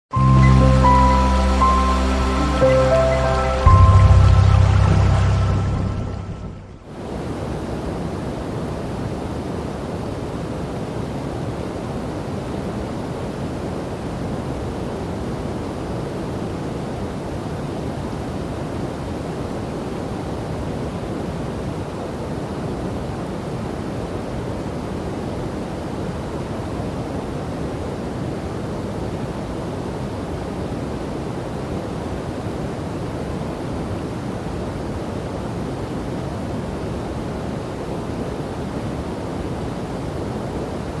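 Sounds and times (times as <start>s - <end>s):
short musical intro: 0.1s - 6.8s
river and waterfall rushing: 0.1s - 41.0s.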